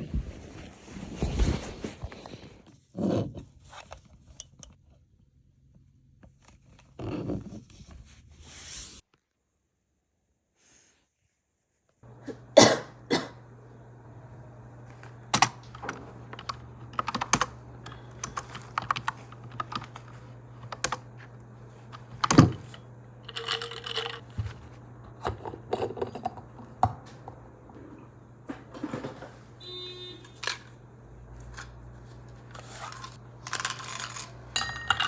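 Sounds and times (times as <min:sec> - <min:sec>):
steady low hum: 0:12.0 - 0:35.0.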